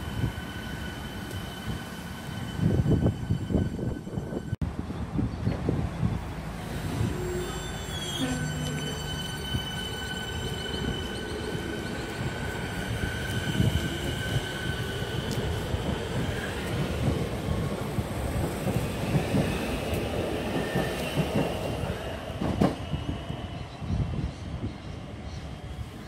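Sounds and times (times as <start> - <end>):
train wheels rumbling and clattering: 8.4 - 24.7.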